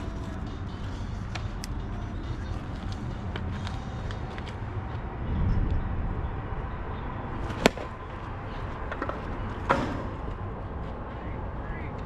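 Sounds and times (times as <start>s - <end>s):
bat cracking a ball: 7.4s - 10.3s.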